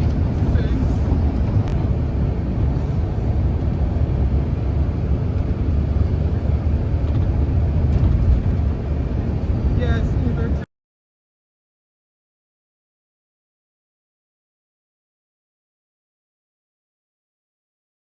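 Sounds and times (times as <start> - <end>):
car road and engine rumble: 0.0 - 10.7.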